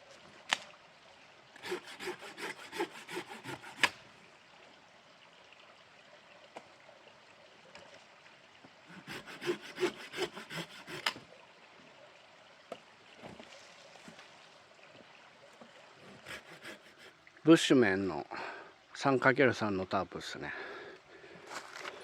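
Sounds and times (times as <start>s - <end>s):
stream rushing: 1.5s - 4.2s, 8.9s - 11.3s
hand saw cutting wood: 1.6s - 4.0s, 8.9s - 11.2s, 16.0s - 17.2s.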